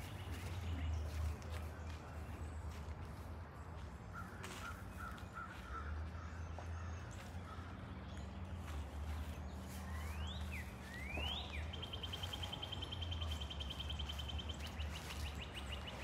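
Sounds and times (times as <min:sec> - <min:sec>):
songbird singing trill: 0:09.5 - 0:16.0.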